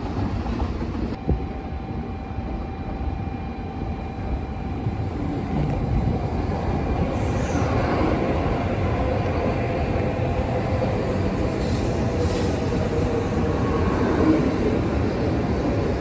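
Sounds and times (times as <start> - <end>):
train wheels rumbling: 0.0 - 1.4, 2.4 - 16.0.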